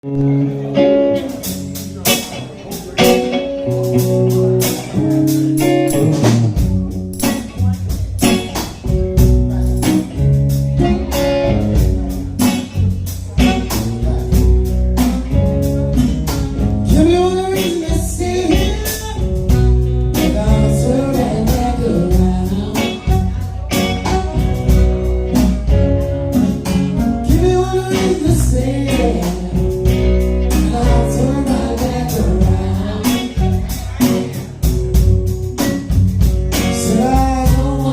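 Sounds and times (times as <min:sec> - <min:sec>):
bass guitar: 0:00.0 - 0:37.9
blues guitar: 0:00.0 - 0:37.9
person singing: 0:15.9 - 0:24.8, 0:27.0 - 0:34.7, 0:36.5 - 0:37.9.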